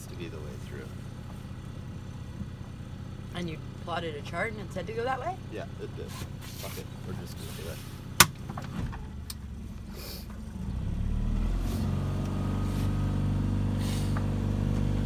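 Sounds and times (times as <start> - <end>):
boat engine throttling up: 8.8 - 15.0.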